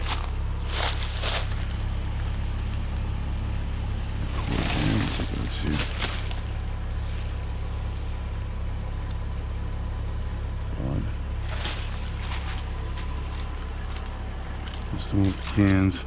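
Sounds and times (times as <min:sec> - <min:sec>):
faint clicks and rustles: 0:00.0 - 0:03.2, 0:04.0 - 0:07.4, 0:11.4 - 0:15.8
steady low rumble: 0:00.0 - 0:16.0.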